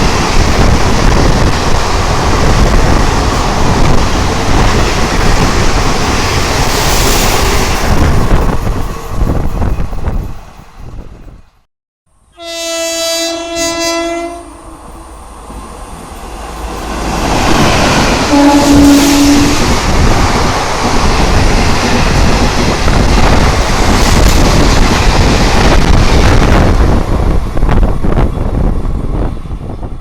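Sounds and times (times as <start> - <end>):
train passing with rail clatter: 0.0 - 11.7, 12.3 - 30.0
train horn: 12.3 - 15.2, 18.0 - 19.8.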